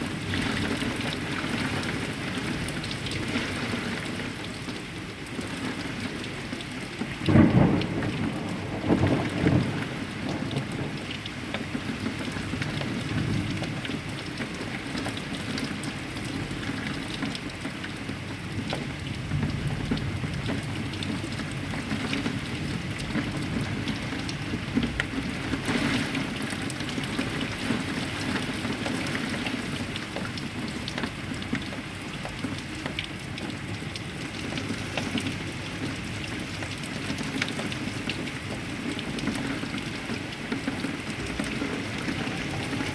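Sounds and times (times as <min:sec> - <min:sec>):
heavy rain falling: 0:00.0 - 0:42.9
loud thunder claps: 0:07.3 - 0:11.2.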